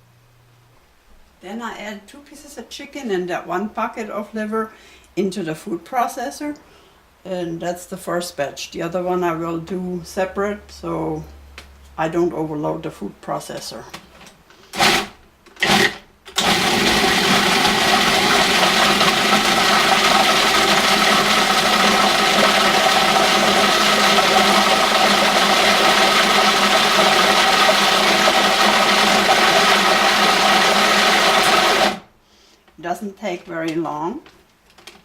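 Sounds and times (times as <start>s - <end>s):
food processor grinding meat: 14.8s - 32.0s.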